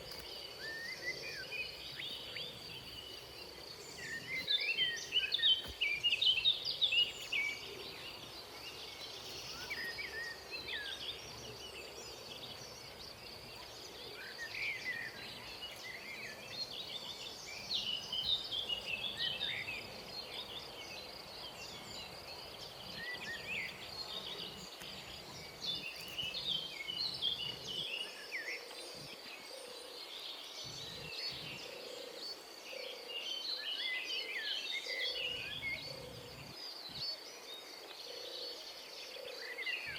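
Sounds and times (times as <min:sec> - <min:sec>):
wild birds chirping: 0:00.0 - 0:39.9.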